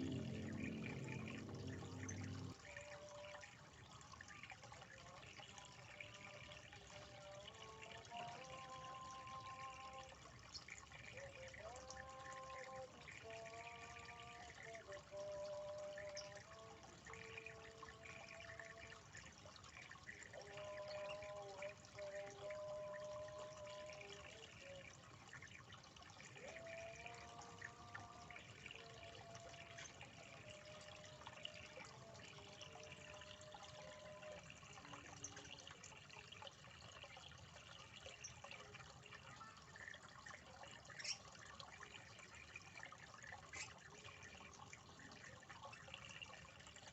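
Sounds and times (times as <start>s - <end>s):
faint steady hiss: 0.0s - 3.0s.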